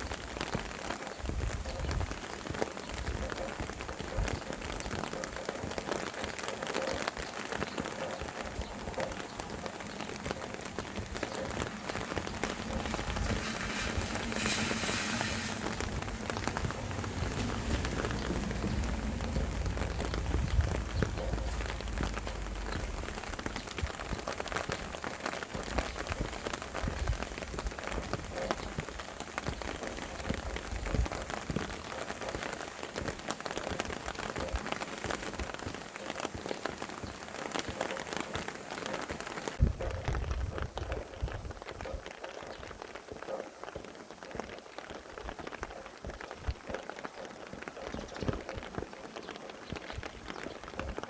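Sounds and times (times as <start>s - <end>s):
low gusts of wind: 0.0s - 37.5s, 38.2s - 42.1s
rain pattering: 0.0s - 51.0s.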